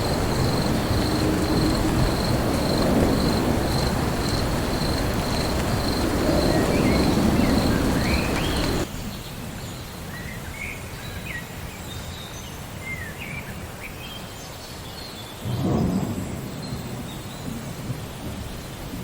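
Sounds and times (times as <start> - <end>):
thunder rumble: 0.0 - 9.6, 15.4 - 19.0
small birds chirping: 0.0 - 15.6
rain: 0.0 - 19.0.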